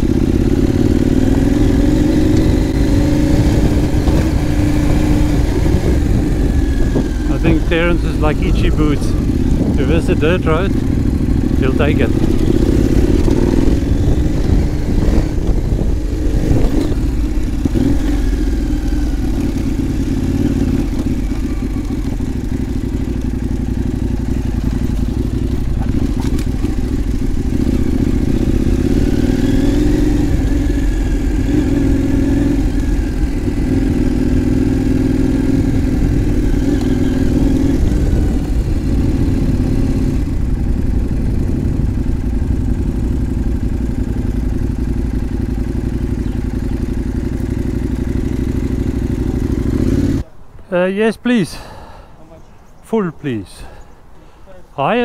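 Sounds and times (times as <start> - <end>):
motorcycle engine running: 0.0 - 50.3
wind noise on microphone: 1.3 - 11.2, 12.1 - 18.4, 35.6 - 43.3.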